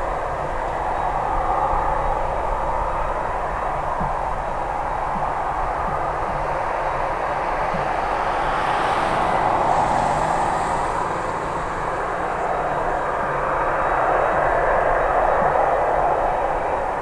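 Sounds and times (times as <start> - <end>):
jet engines running: 6.0 - 14.5.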